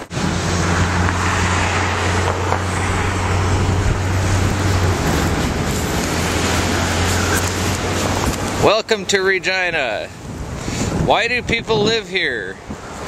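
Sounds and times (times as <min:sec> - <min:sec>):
vehicle engine humming: 0:00.0 - 0:11.1.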